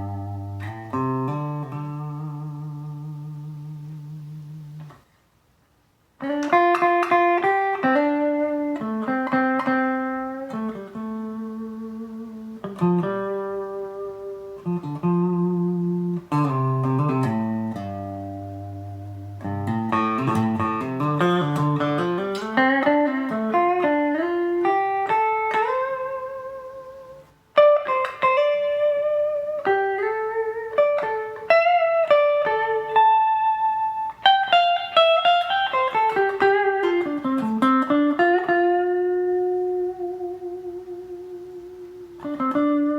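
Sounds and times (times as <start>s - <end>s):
electric guitar melody: 0.0s - 5.1s, 6.2s - 42.9s.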